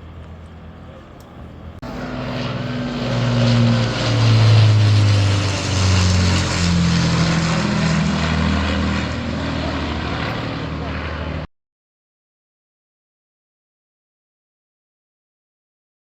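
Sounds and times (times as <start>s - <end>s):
aircraft piston engines droning: 0.0s - 11.5s.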